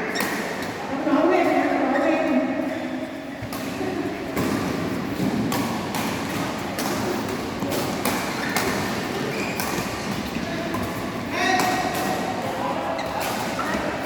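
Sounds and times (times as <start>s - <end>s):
steady background noise: 0.0s - 14.0s
racket striking shuttlecock: 4.4s - 12.5s.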